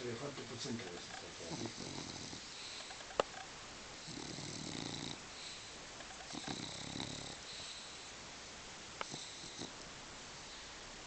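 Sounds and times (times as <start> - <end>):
dog snoring: 0.7 - 3.1, 4.0 - 8.1, 9.0 - 9.8.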